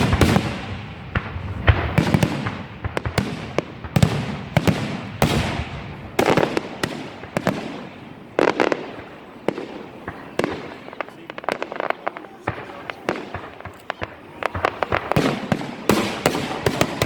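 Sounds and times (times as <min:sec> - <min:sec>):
fireworks crackling: 0:00.0 - 0:17.0
fireworks exploding: 0:00.0 - 0:17.0.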